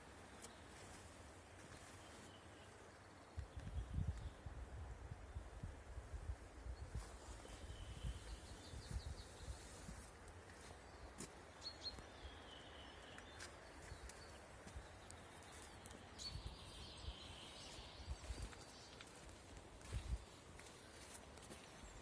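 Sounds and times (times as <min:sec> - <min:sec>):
birds chirping: 0:06.9 - 0:22.0.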